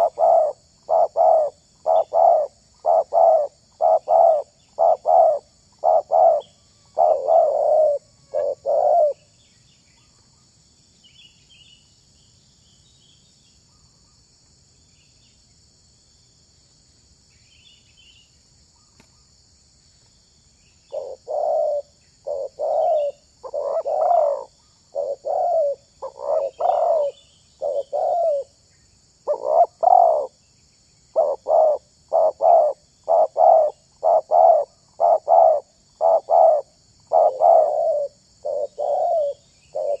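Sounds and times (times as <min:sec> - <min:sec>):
dove cooing: 0:00.0 - 0:09.2, 0:20.9 - 0:28.6, 0:29.3 - 0:30.3, 0:31.2 - 0:40.0
small birds chirping: 0:00.0 - 0:15.5, 0:17.3 - 0:19.3, 0:19.9 - 0:40.0.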